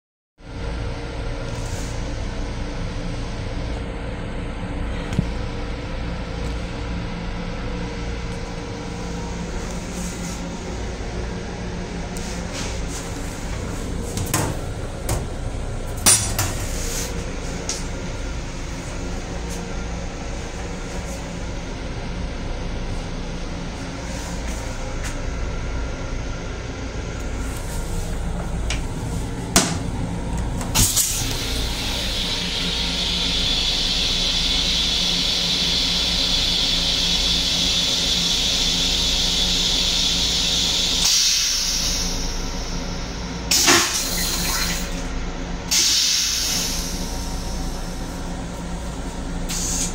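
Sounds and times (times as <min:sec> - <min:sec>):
railcar rumble and hum: 0:00.4 - 0:49.9
hiss: 0:30.8 - 0:45.0, 0:45.7 - 0:48.1, 0:49.4 - 0:49.9.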